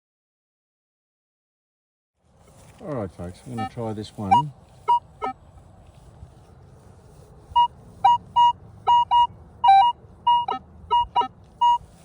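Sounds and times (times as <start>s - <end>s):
metal detector beeps: 3.6s - 5.4s, 7.6s - 12.0s.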